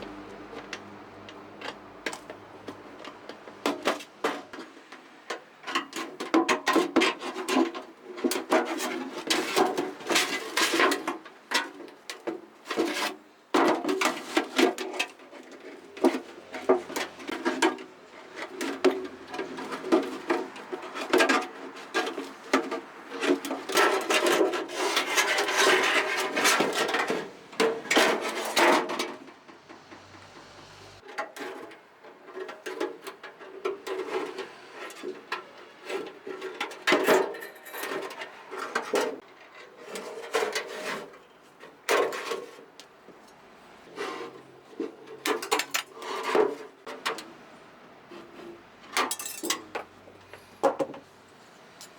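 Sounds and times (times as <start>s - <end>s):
hand tool scraping metal: 15.8s - 29.1s.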